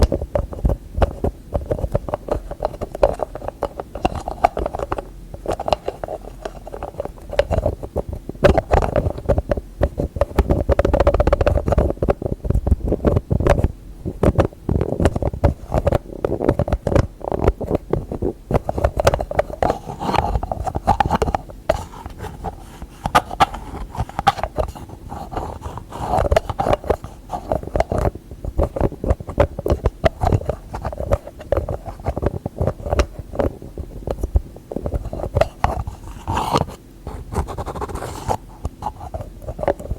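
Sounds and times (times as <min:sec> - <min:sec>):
fingertips tapping on lids: 0:00.0 - 0:36.7
light scratching: 0:14.3 - 0:39.9.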